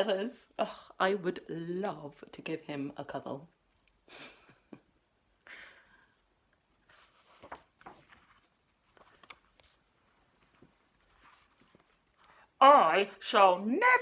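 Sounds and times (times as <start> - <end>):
picture book pages rustling: 6.7 - 12.3.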